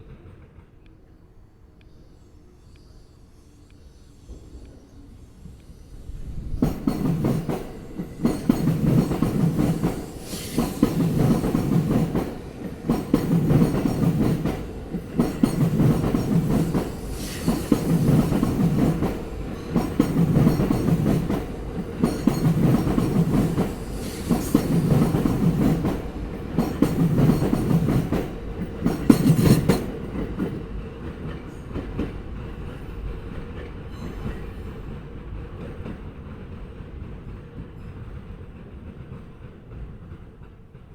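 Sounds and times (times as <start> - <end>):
train wheels clattering over rail joints: 6.6 - 32.8.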